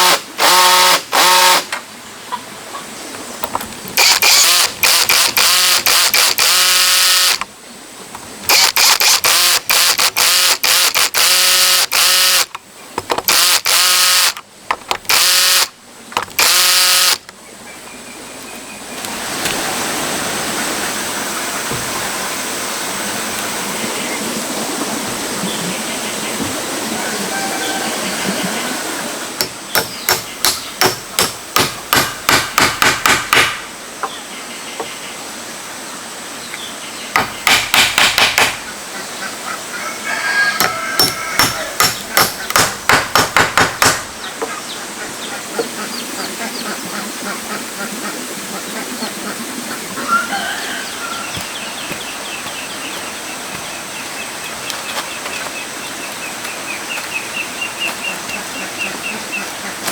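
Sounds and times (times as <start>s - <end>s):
chickens clucking faintly: 2.0s - 3.5s, 17.4s - 29.4s, 38.7s - 42.6s, 44.2s - 59.9s
hammer driving nails into wood: 29.4s - 33.7s, 37.2s - 38.6s, 40.6s - 44.1s.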